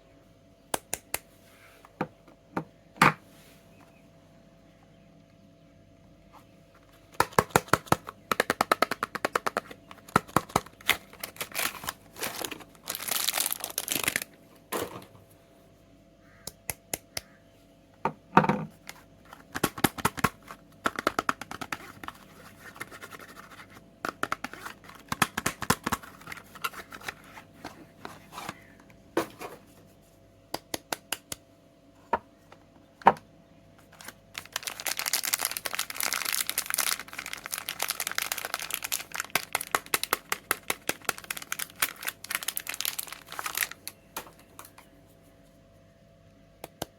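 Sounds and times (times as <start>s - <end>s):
wrapper crinkling and tearing: 7.2s - 14.3s, 33.9s - 44.0s.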